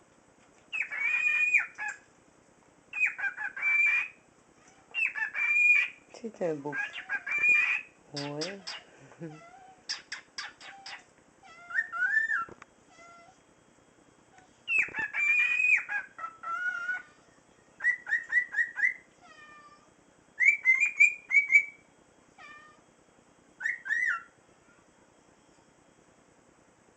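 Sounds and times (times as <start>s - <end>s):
cockatiel chirping and whistling: 0.7s - 2.0s, 2.9s - 4.2s, 4.9s - 6.0s, 7.0s - 8.8s, 9.9s - 13.2s, 14.7s - 17.1s, 17.8s - 19.0s, 20.4s - 21.8s, 23.6s - 24.3s.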